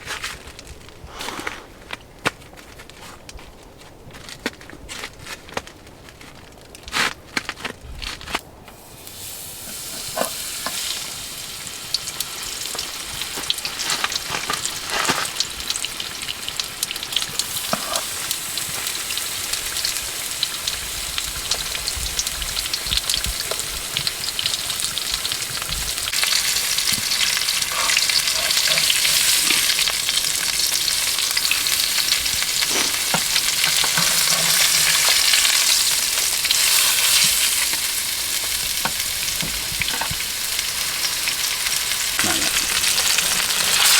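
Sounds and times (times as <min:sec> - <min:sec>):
food sizzling in a pan: 0:08.7 - 0:43.9.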